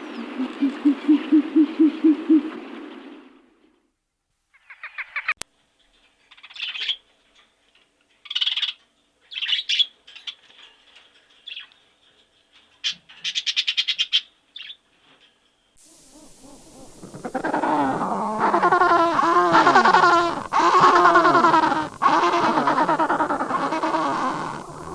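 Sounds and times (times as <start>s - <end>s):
bird trilling: 0.0s - 3.5s, 15.9s - 24.9s
small bird chirping: 4.5s - 5.4s, 6.3s - 7.1s, 8.2s - 10.6s, 11.4s - 11.8s, 12.8s - 14.9s.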